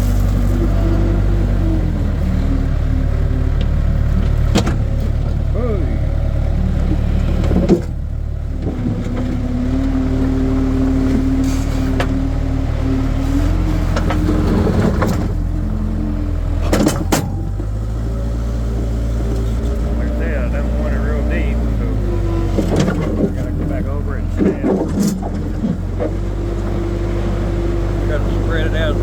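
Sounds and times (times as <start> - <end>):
skid steer loader running: 0.0 - 29.0.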